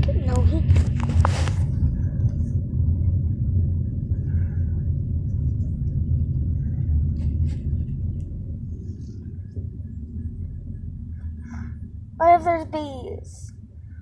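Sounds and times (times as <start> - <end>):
car cabin road and engine rumble: 0.0 - 14.0.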